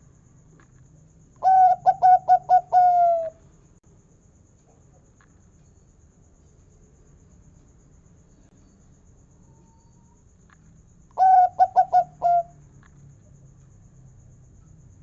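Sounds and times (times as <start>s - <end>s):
zebra dove singing: 1.4s - 3.4s, 11.2s - 12.5s.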